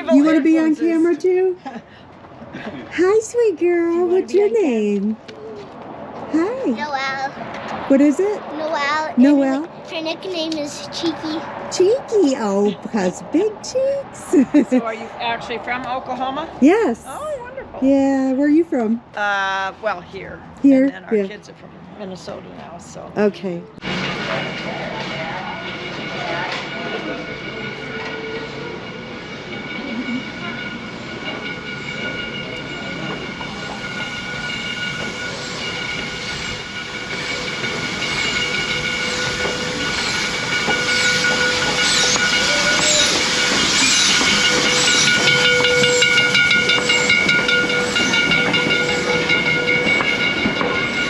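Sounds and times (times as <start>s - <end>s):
steady high tones: 0.0s - 1.9s, 22.0s - 51.0s
steam locomotive hissing steam: 23.9s - 51.0s.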